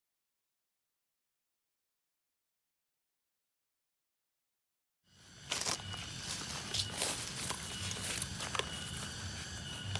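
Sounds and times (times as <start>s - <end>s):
high insect tone: 5.1s - 9.9s.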